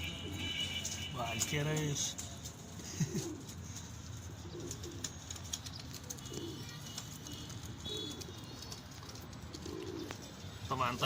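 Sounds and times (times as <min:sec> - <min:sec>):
pigeons cooing: 0:02.7 - 0:10.7.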